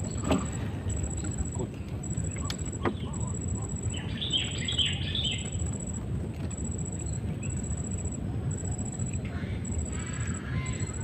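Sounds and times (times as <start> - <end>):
low background noise: 0.0 - 11.0
bird singing chirps: 0.9 - 5.7, 6.9 - 8.0.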